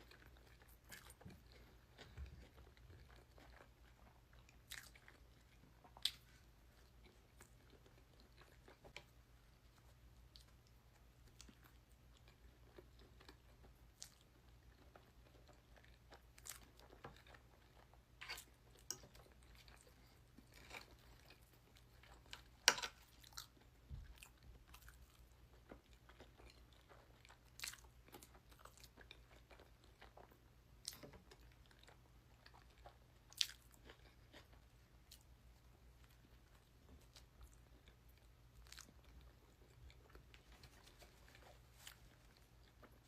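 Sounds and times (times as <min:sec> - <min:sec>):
faint steady hum: 0:00.0 - 0:43.0
person chewing crunchy food: 0:00.0 - 0:43.0.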